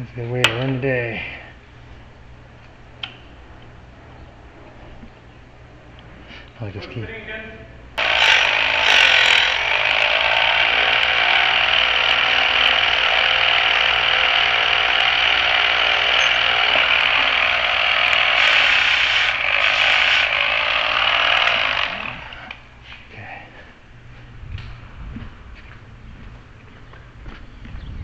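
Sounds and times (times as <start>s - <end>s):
key duplicating machine cutting: 8.0s - 22.5s.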